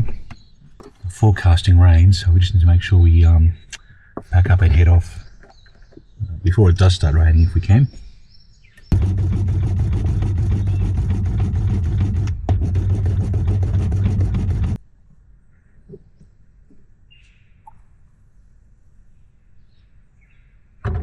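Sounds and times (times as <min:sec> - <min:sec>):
bird chirps: 0:03.4 - 0:08.9, 0:10.6 - 0:10.9, 0:17.1 - 0:18.0
car engine with road noise: 0:08.8 - 0:14.8.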